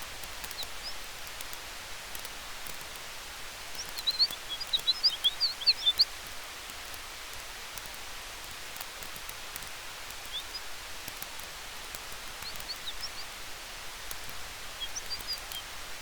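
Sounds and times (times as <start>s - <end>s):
campfire hissing and crackling: 0.0s - 16.0s
small bird chirping: 0.2s - 1.5s, 3.6s - 6.4s, 9.0s - 15.8s.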